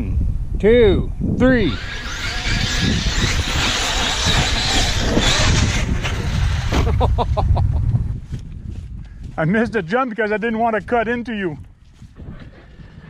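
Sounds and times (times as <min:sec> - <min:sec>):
tyres churning sand: 0:01.5 - 0:07.1
short motor whines: 0:01.6 - 0:07.0
electric rc trucks driving: 0:01.6 - 0:07.2.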